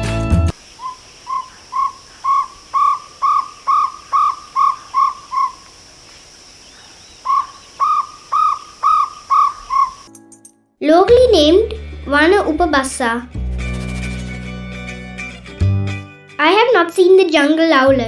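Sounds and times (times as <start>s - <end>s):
owlet hooting calls: 0.6s - 10.1s.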